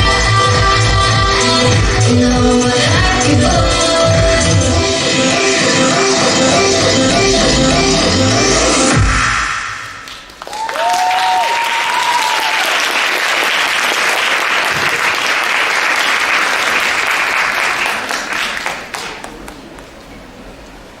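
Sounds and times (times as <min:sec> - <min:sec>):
dance music: 0:00.0 - 0:10.1
audience applauding: 0:10.0 - 0:20.0
cheering cries: 0:10.4 - 0:13.2.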